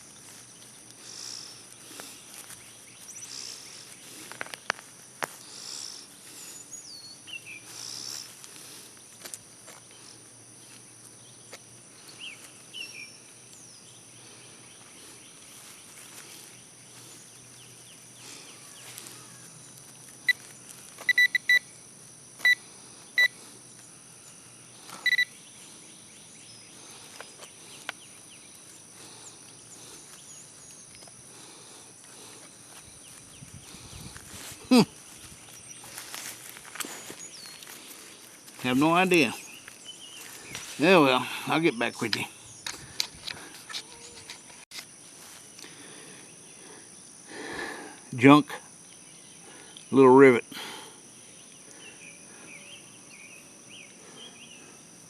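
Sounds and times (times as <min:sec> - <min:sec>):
birds chirping: 0:00.0 - 0:09.1, 0:09.8 - 0:44.6
high insect drone: 0:00.0 - 0:55.0
metal detector beeping: 0:20.2 - 0:21.7, 0:22.4 - 0:23.4, 0:24.9 - 0:25.4.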